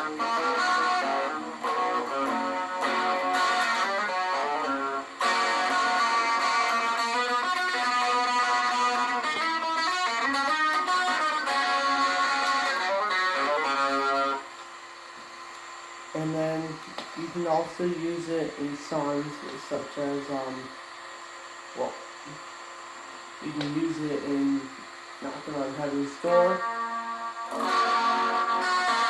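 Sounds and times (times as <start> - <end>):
electric guitar with shimmering tone: 0.0 - 17.3, 23.4 - 29.0.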